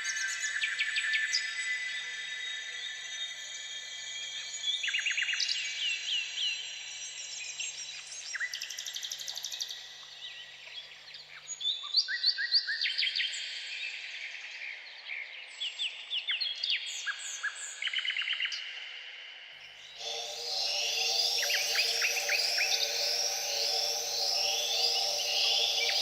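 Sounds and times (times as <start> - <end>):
chorus of birds singing: 19.8 - 26.0.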